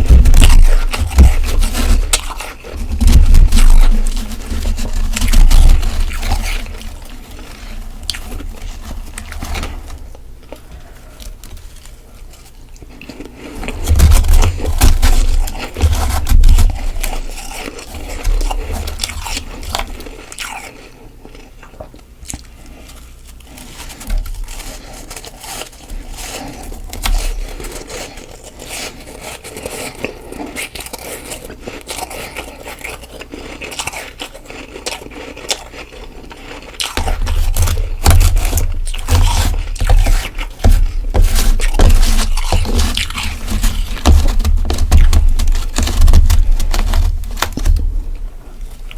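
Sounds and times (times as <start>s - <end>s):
frost being chewed: 0.0s - 48.9s.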